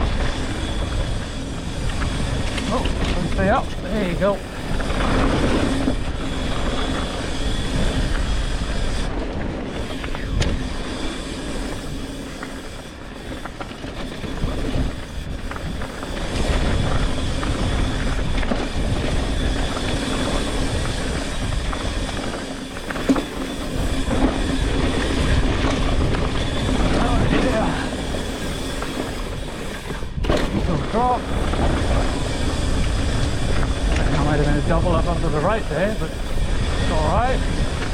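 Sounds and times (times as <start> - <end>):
bike rattling: 0.0 - 37.9
bike tyres rolling and skidding on dirt: 0.0 - 37.9
wind on microphone: 0.0 - 37.9
bike knocking against something: 30.2 - 31.1.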